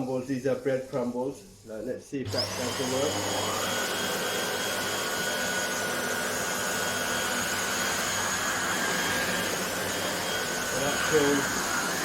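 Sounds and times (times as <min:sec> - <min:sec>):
vacuum cleaner motor whine: 0:02.2 - 0:12.0.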